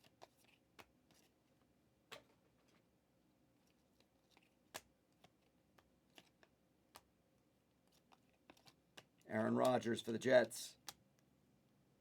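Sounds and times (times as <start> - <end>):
faint irregular clicks and taps: 3.6 - 7.1, 7.8 - 9.8, 10.8 - 11.3.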